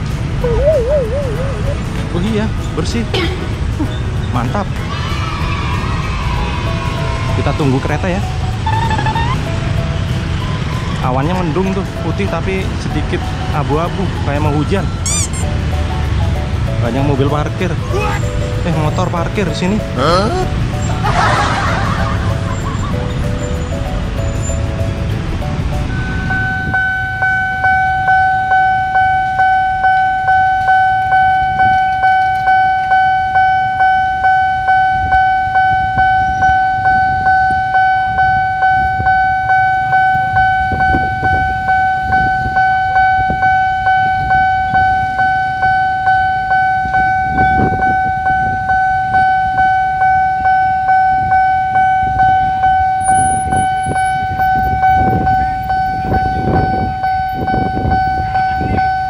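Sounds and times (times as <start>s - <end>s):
level crossing alarm pulsing: 0.4s - 2.0s, 25.9s - 59.0s.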